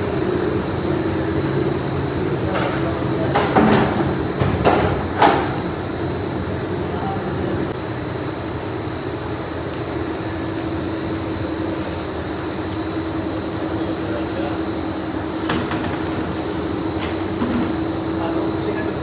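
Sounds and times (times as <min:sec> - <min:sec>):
factory machinery din: 0:00.0 - 0:08.2, 0:12.1 - 0:19.0.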